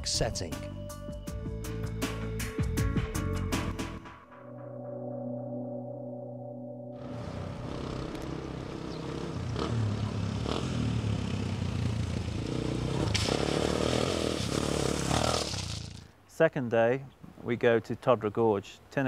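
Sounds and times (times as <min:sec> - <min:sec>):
motorcycle engines running: 0:07.0 - 0:16.1.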